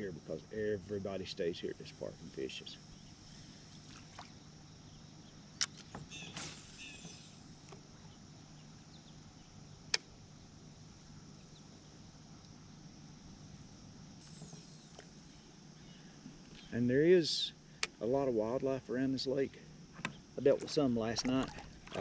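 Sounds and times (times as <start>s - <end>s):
faint low hum: 0.0s - 22.0s
sharp clicks of gear: 5.6s - 7.1s.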